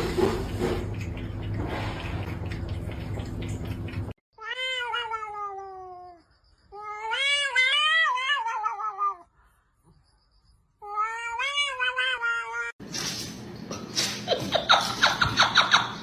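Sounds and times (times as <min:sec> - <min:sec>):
cat meowing: 0:04.4 - 0:06.2, 0:06.8 - 0:09.3.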